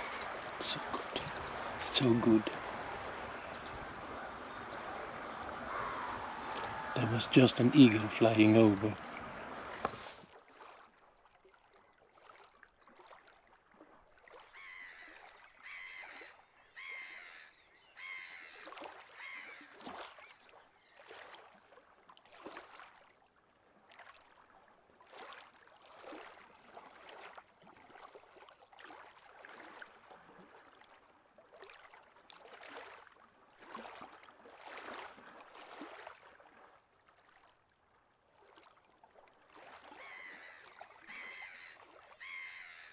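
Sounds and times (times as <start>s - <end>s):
birds calling: 0.0s - 10.1s, 14.5s - 21.0s, 40.0s - 42.9s.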